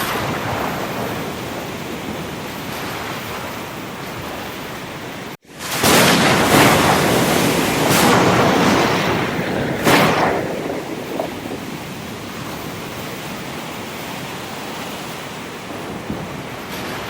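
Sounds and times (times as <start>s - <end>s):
ocean waves crashing: 0.0s - 17.0s.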